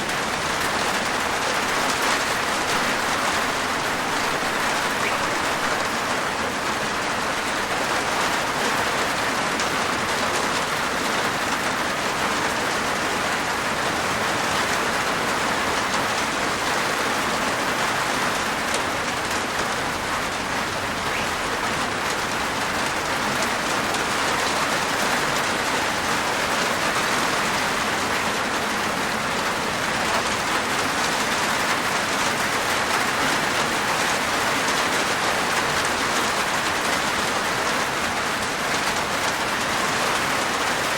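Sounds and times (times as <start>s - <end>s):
rain on a rooftop: 0.0s - 40.9s.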